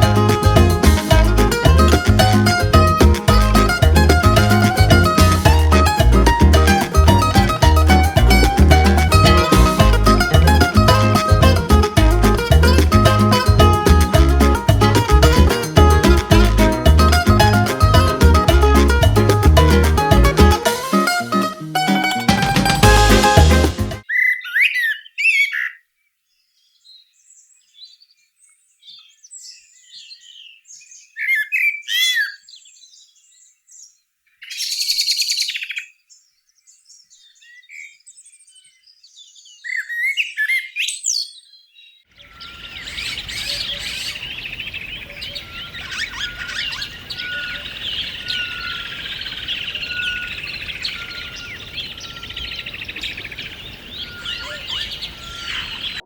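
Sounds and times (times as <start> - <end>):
outdoor background noise: 40.9 - 56.0
chorus of birds calling: 42.2 - 56.0
birds chirping and whistling: 42.3 - 56.0.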